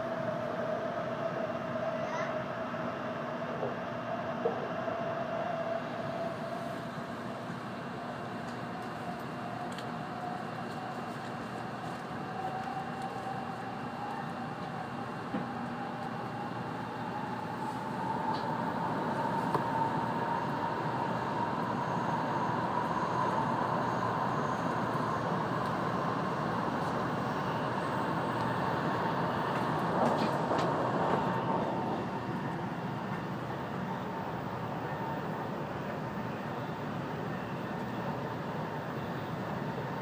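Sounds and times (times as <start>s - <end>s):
train interior rushing noise: 0.0s - 40.0s
thin whine: 12.3s - 38.1s.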